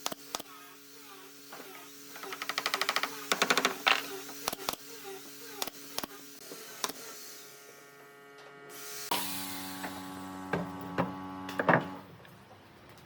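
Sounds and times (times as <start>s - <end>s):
electric motor hum: 0.0s - 12.1s.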